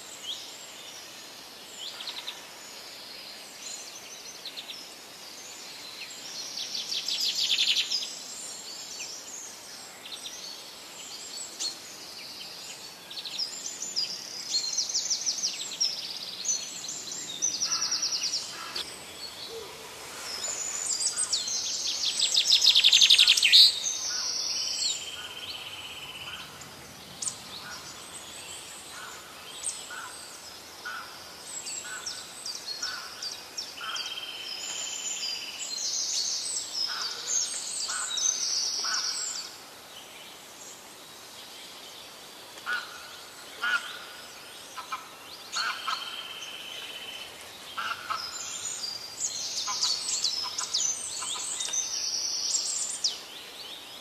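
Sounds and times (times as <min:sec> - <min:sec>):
songbirds trilling: 0:00.0 - 0:54.0
steady background hiss: 0:00.0 - 0:54.0.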